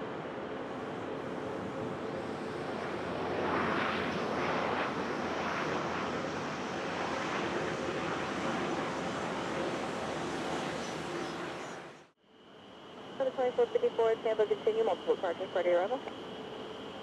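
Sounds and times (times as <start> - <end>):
aircraft engines rushing: 0.0 - 12.1.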